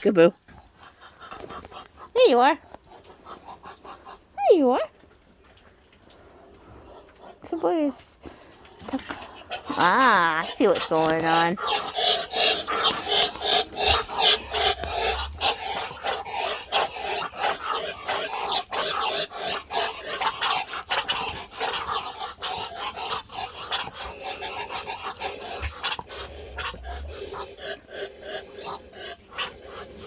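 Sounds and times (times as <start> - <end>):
poultry chattering calls: 9.5 - 30.0.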